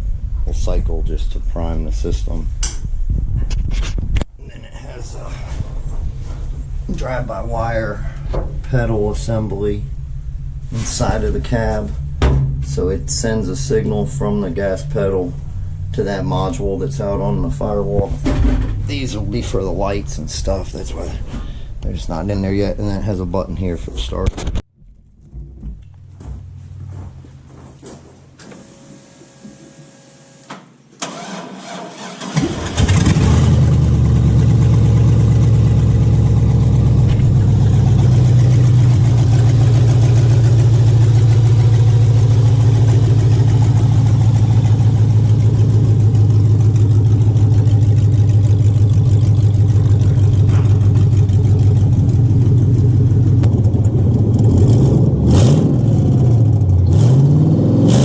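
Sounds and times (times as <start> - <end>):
fuel pump whine: 5.2 - 21.9, 24.9 - 31.4, 32.2 - 56.9
starter motor cranking: 31.0 - 33.5
loud engine idling: 32.8 - 55.1.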